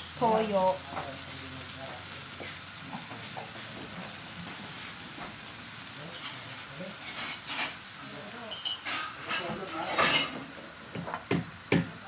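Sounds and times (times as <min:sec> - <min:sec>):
sauce sizzling in a wok: 0:00.0 - 0:12.0
snails sizzling in a wok: 0:00.0 - 0:12.0.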